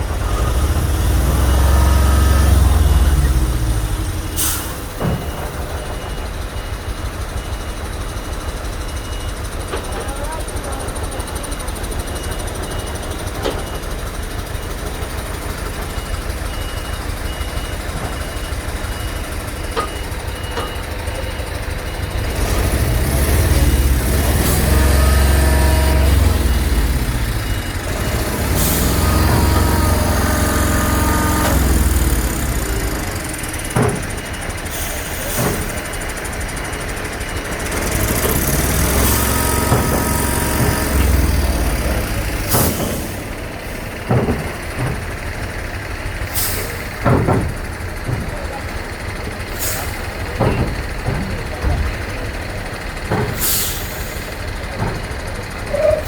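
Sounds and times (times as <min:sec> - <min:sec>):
lorry engines idling and revving: 0:00.0 - 0:56.0
air brake hisses: 0:04.2 - 0:05.3, 0:28.4 - 0:33.1, 0:34.6 - 0:35.9, 0:37.9 - 0:44.0, 0:46.2 - 0:47.0, 0:49.5 - 0:50.2, 0:53.3 - 0:54.5.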